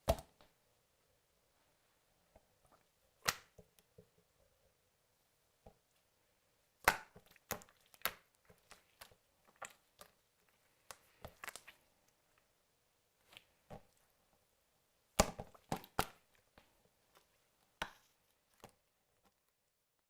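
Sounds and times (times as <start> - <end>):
slime popping and clicking: 3.2 - 3.6.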